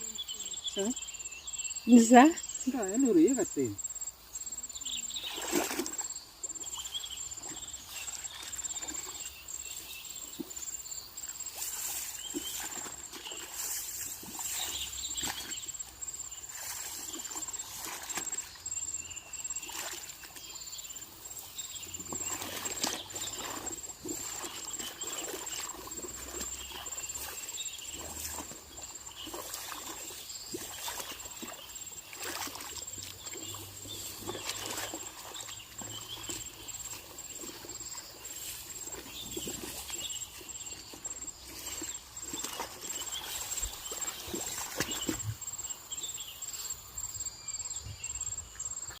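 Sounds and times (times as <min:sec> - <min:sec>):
wet mud splashing: 0:05.2 - 0:10.7, 0:11.4 - 0:18.8, 0:21.5 - 0:45.4.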